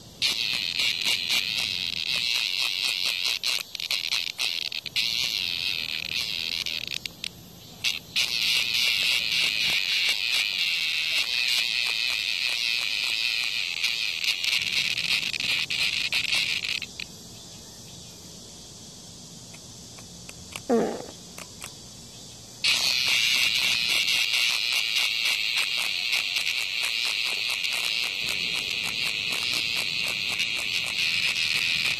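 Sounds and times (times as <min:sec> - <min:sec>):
cicada buzzing loudly: 0:00.0 - 0:31.9.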